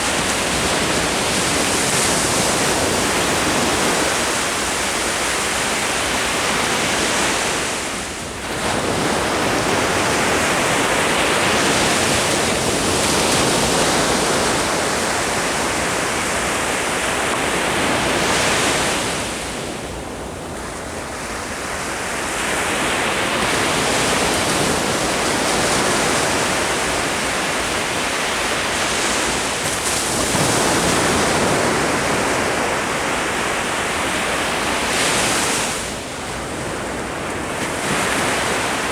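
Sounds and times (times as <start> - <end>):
waves breaking on shore: 0.0 - 38.9.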